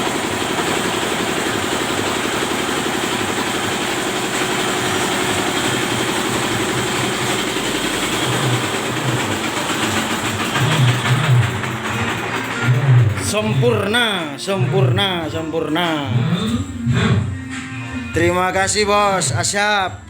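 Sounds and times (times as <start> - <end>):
fast even clatter: 0.0 - 14.3
grinding machine motor drone: 0.0 - 18.0.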